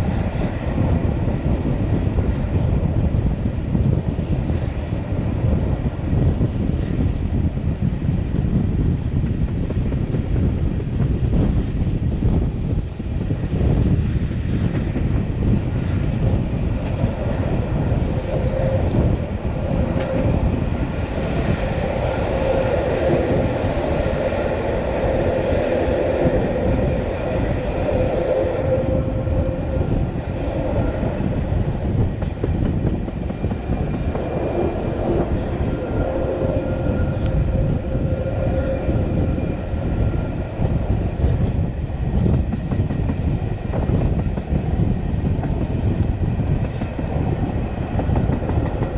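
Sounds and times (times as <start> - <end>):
train wheels rumbling on track: 0.0 - 48.9
high thin wheel squeal: 17.8 - 31.8, 38.0 - 39.6, 48.6 - 48.9.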